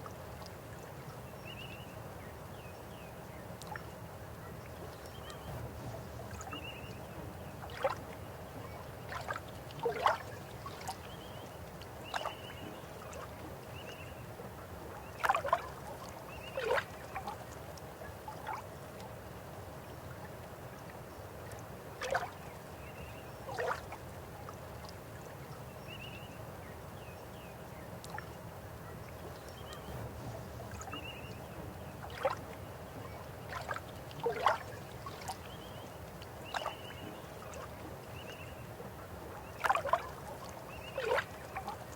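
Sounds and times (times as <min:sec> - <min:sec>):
river water flowing: 0:03.2 - 0:27.0, 0:27.6 - 0:41.9
water gurgles and splashes: 0:07.5 - 0:11.2, 0:15.1 - 0:17.6, 0:22.0 - 0:22.4, 0:23.5 - 0:24.1, 0:29.6 - 0:41.9.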